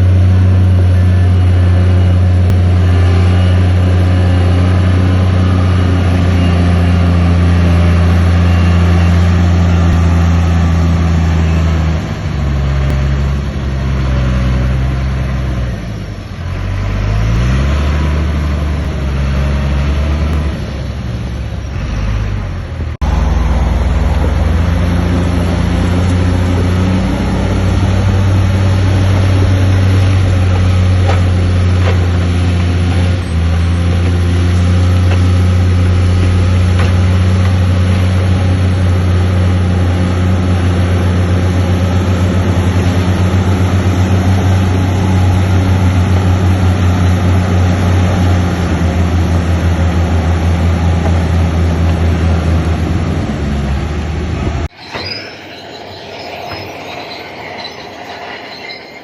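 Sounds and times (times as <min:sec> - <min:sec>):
heavy diesel engine running: 0:00.0 - 0:59.0
metal squealing: 0:54.7 - 0:59.0.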